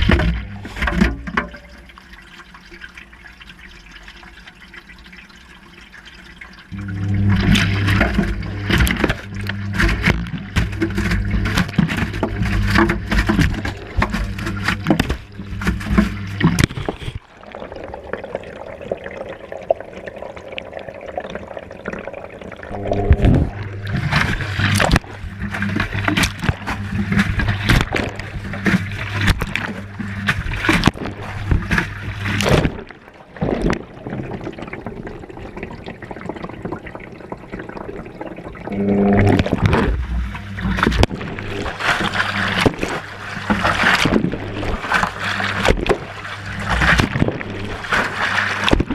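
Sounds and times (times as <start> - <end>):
water sloshing: 0.0 - 5.2, 5.8 - 48.9
washing machine motor hum: 6.7 - 16.7, 22.7 - 32.8, 38.6 - 48.9.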